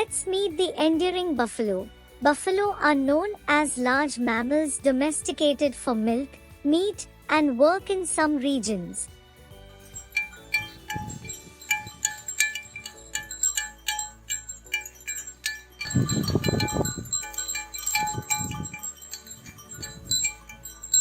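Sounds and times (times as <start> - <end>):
tinkling wind-chime music: 9.6 - 21.0
low rumbling: 10.0 - 21.0.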